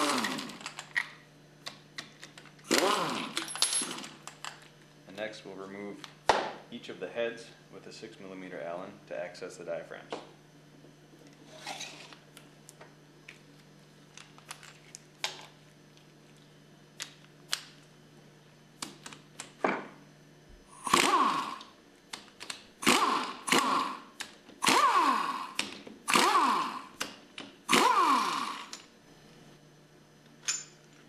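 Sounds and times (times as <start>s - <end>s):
power driver whirring: 0.0s - 1.1s, 2.6s - 4.1s, 20.7s - 21.8s, 22.8s - 28.9s
metal tools clicking and knocking: 30.4s - 30.8s.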